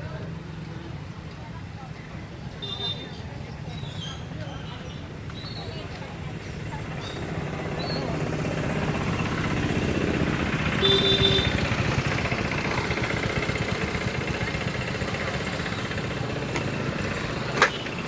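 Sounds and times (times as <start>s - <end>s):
vehicle engine running: 5.0s - 18.0s
short tone: 10.8s - 11.7s.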